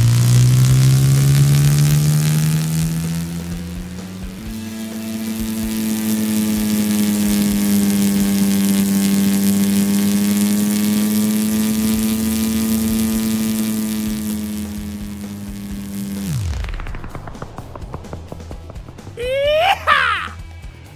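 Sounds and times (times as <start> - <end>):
hiss: 0.0 - 20.4
propeller airplane engine drone: 0.0 - 20.9.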